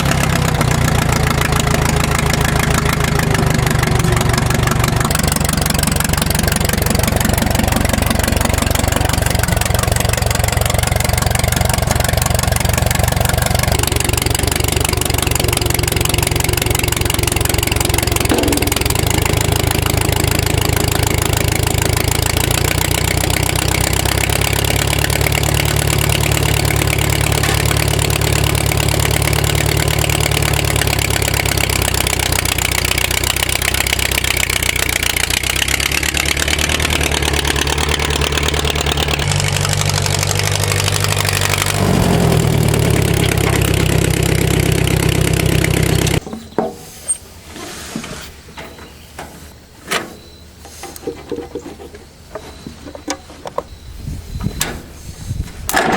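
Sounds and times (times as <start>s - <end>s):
scattered knocks and clicks: 0.0s - 36.9s
vehicle engine running: 0.0s - 46.2s.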